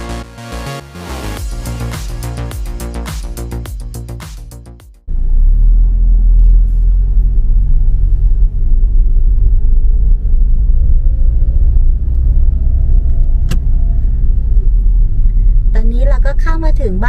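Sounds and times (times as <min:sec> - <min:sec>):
low road rumble: 0:00.0 - 0:17.0.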